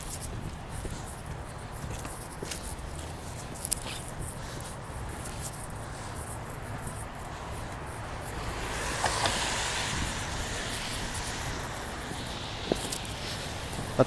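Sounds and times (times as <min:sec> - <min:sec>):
wind rumbling on microphone: 0:00.0 - 0:14.0
tyres hissing past: 0:07.7 - 0:14.0.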